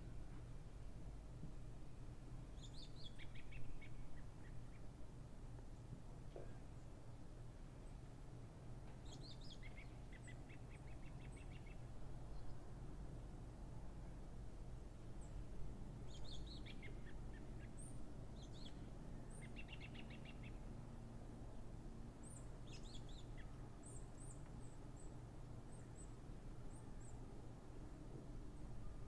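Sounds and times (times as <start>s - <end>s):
low steady hum: 0.0s - 29.0s
small birds chirping: 16.1s - 20.7s.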